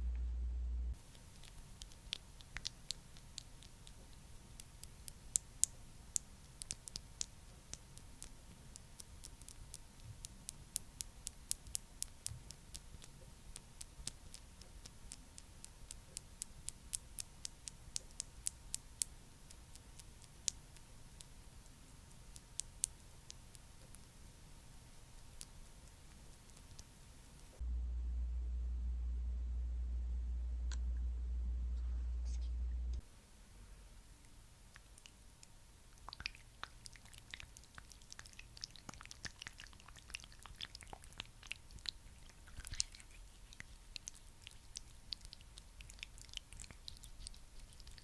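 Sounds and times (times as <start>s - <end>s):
faint steady hiss: 0.0s - 48.0s
crisp clicks and ticks: 1.0s - 24.2s, 25.1s - 27.6s, 34.2s - 48.0s.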